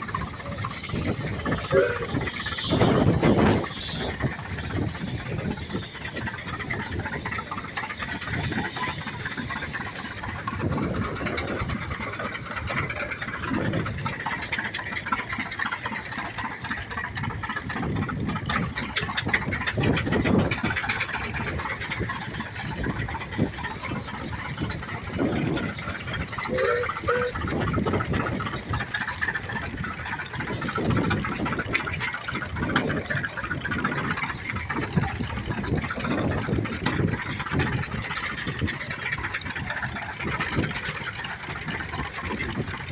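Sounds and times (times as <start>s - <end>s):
tractor engines running: 0.0s - 42.9s
people's voices: 1.3s - 3.4s, 26.3s - 27.5s.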